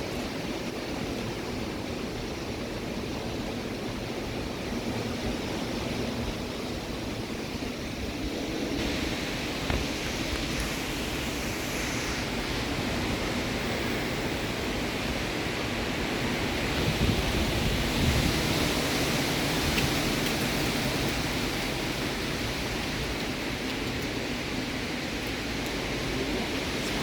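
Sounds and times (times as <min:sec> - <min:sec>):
strong storm wind rushing: 0:03.8 - 0:23.6.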